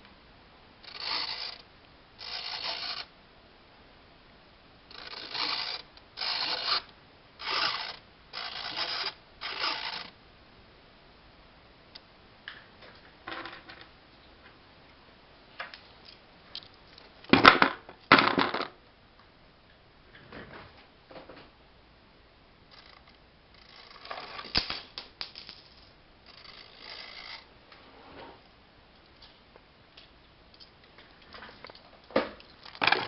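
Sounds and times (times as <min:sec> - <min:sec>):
mechanism clicking and rattling: 0:00.8 - 0:03.1, 0:04.9 - 0:10.1, 0:22.7 - 0:27.4, 0:31.4 - 0:33.0.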